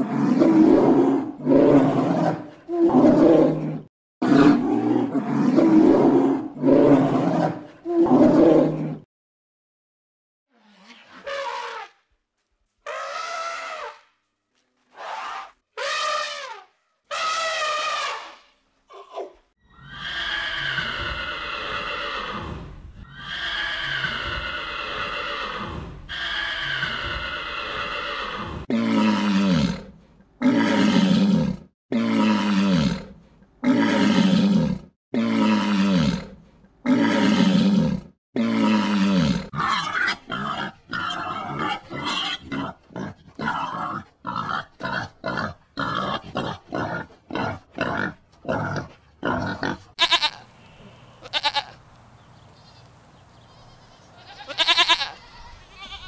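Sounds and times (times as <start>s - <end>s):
animal calls and cries: 38.6s - 47.6s, 48.5s - 56.0s.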